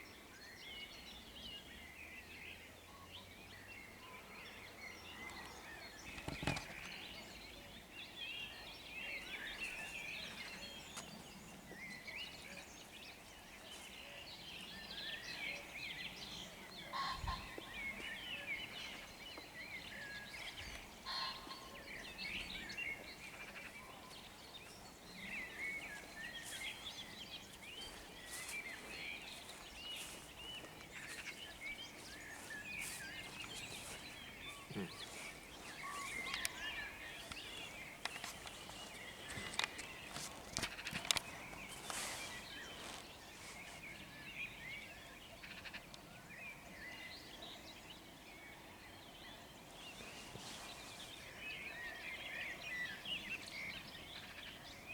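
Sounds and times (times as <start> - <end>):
songbirds singing: 0.0 - 54.9
pheasant crowing: 16.8 - 17.7, 21.0 - 21.9.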